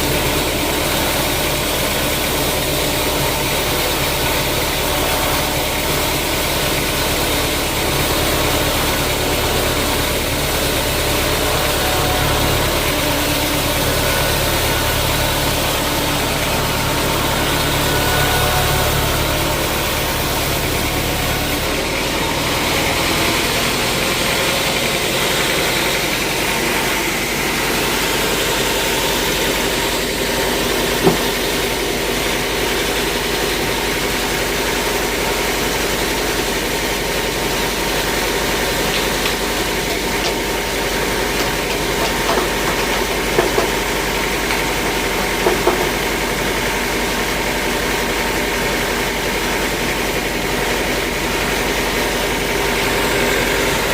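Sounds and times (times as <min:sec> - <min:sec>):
sawmill machinery drone: 0:00.0 - 0:53.9
sharp knocks: 0:31.0 - 0:31.4.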